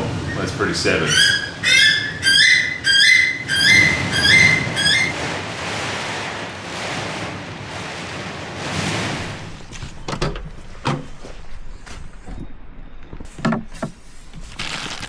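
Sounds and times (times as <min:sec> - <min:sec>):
storm wind gusting: 0:00.0 - 0:10.7.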